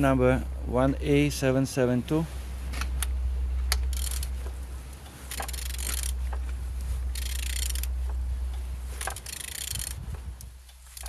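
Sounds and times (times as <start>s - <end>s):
steady low hum: 0.0s - 11.0s
engine turned over by hand: 3.7s - 8.2s, 8.9s - 11.0s.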